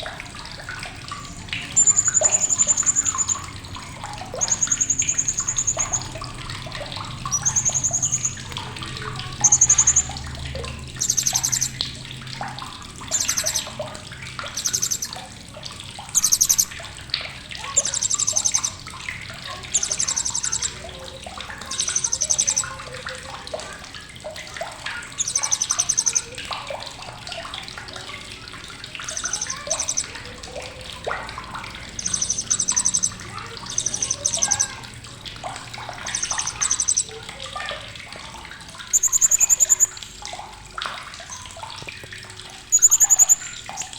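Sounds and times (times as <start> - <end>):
faint bird chirps: 1.1 - 12.0, 13.0 - 15.3, 16.0 - 17.0, 17.6 - 23.7, 24.8 - 26.9, 28.8 - 40.2, 42.7 - 43.9
parrot chattering bursts: 1.3 - 3.6, 4.3 - 6.2, 7.2 - 8.5, 9.2 - 10.2, 10.8 - 11.8, 13.0 - 13.8, 14.5 - 15.2, 16.1 - 16.8, 17.6 - 18.8, 19.5 - 22.9, 24.9 - 26.3, 29.0 - 30.3, 31.9 - 34.9, 35.6 - 37.6, 38.9 - 40.0, 42.7 - 43.9.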